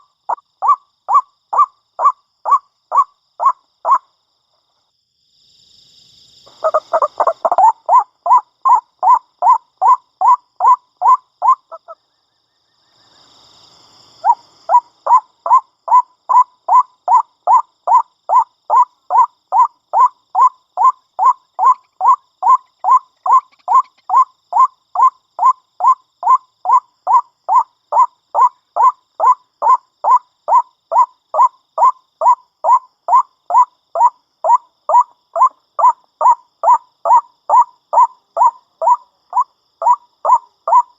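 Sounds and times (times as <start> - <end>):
waterhen calling: 6.5 - 9.2.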